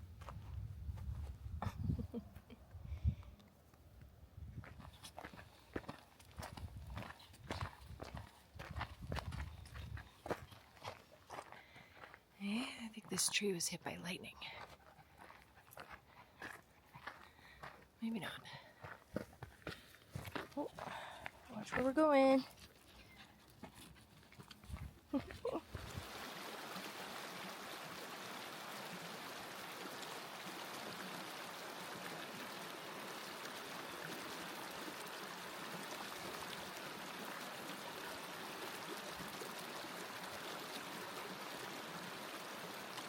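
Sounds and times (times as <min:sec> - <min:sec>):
rush of flowing water: 0:25.5 - 0:43.0.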